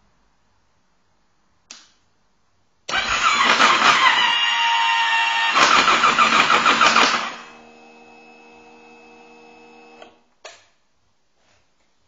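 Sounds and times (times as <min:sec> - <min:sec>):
click: 0:01.7 - 0:02.0
motorcycle engine cranking: 0:02.9 - 0:04.3.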